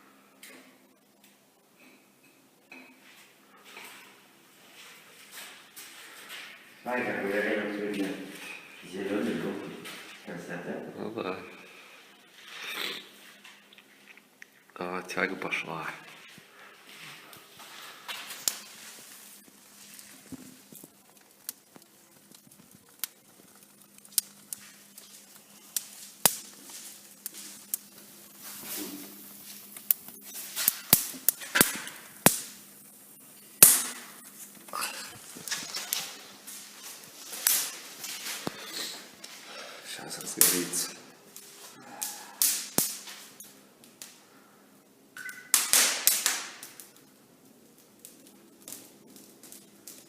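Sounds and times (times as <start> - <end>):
fire crackling and popping: 0.0 - 50.0.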